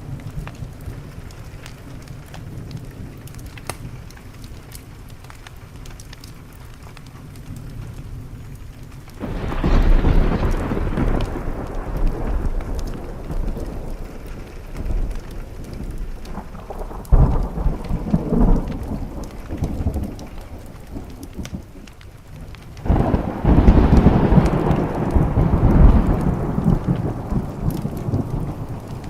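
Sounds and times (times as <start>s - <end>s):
steady rain: 0.0s - 29.0s
thunder rumbling: 7.2s - 29.0s.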